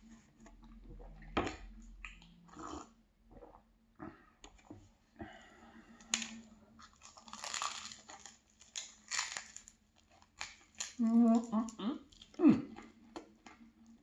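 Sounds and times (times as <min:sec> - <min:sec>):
crunchy pastry chewing: 0:06.8 - 0:14.0.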